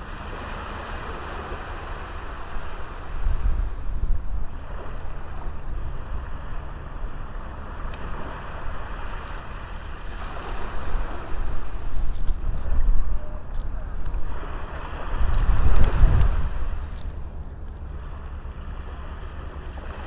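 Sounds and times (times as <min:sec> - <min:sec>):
sea waves washing onto beach: 0:00.0 - 0:20.0
wind rumble on microphone: 0:00.0 - 0:20.0.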